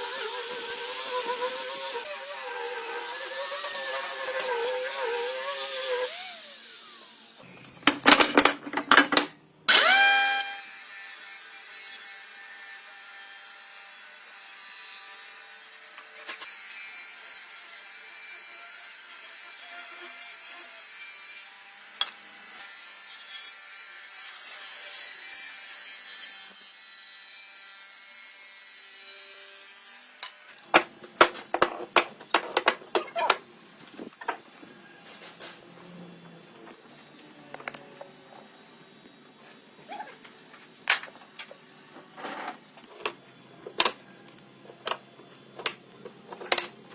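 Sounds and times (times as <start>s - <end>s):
power tool cutting wood: 0.0s - 8.0s, 9.7s - 30.6s
clicks and knocks: 7.6s - 9.4s.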